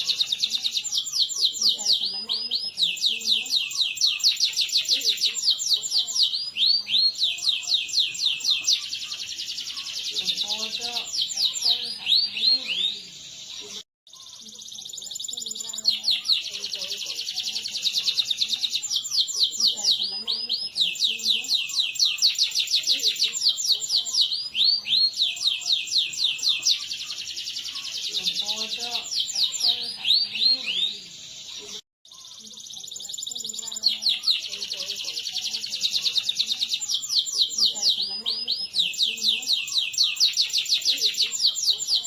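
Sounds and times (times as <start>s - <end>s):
canary singing: 0.0s - 42.0s.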